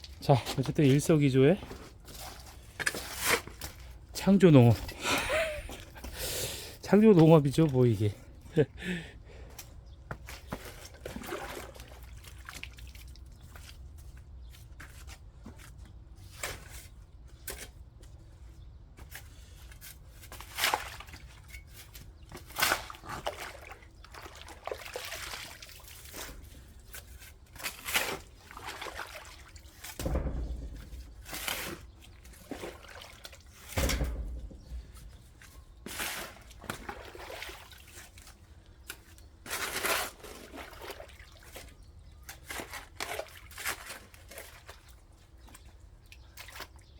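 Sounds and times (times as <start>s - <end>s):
water splashing onto wet soil: 10.4s - 13.4s, 22.5s - 26.2s, 27.7s - 30.2s.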